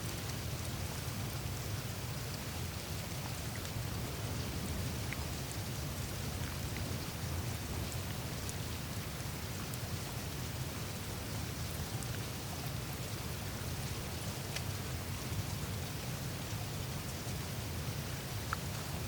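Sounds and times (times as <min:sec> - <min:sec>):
meltwater trickling and dripping: 0:00.0 - 0:19.0
faint ticks of ice: 0:14.2 - 0:15.0, 0:18.1 - 0:19.0.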